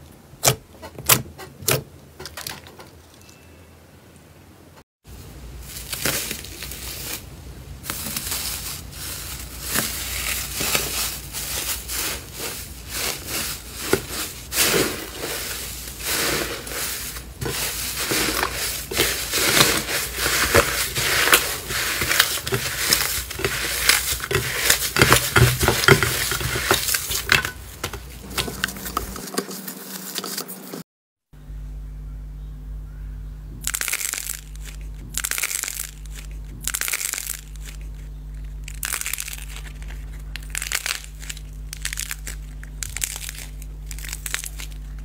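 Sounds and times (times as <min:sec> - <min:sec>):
slime crackling and popping: 0:17.3 - 0:27.5, 0:33.6 - 0:45.0.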